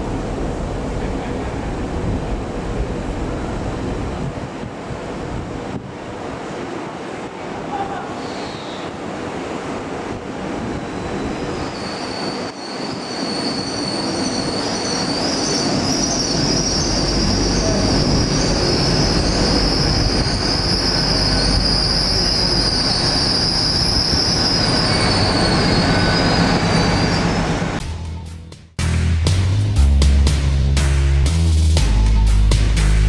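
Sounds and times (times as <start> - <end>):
train brakes squealing: 8.2 - 9.0, 10.6 - 28.4.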